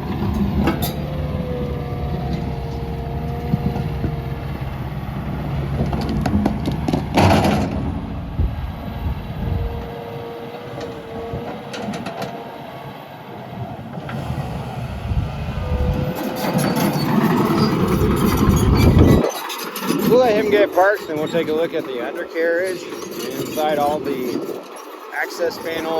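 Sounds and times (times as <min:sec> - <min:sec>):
diesel engine under load: 0:00.0 - 0:25.9
steel tracks clanking: 0:00.0 - 0:25.9
thin hydraulic whine: 0:00.3 - 0:19.5.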